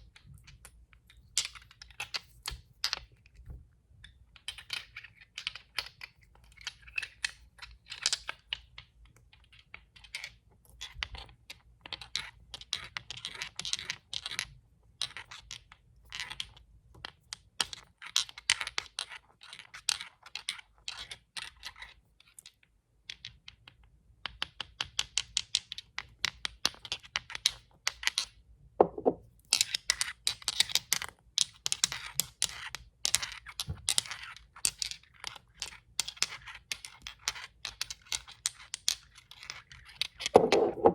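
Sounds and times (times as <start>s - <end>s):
tapping on glass bottles: 28.8s - 29.2s.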